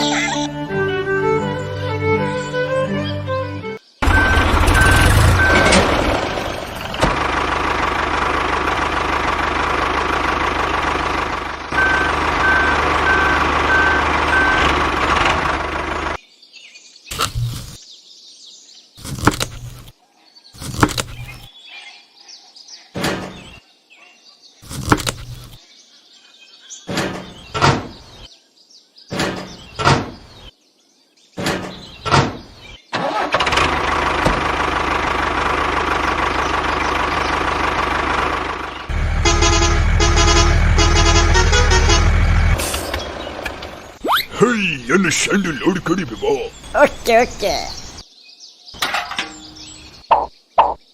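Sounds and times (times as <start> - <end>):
vehicle engine running: 4.0 - 16.2, 33.4 - 47.4.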